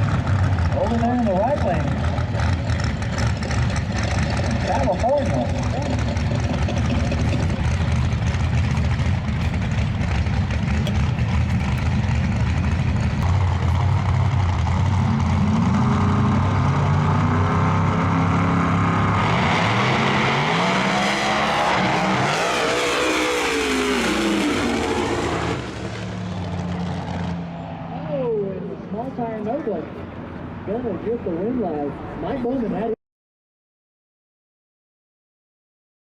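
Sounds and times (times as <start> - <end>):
drag car engines idling: 0.0 - 21.6, 28.4 - 32.9
drag cars accelerating: 0.0 - 32.9
rush of cars down track: 0.0 - 33.0.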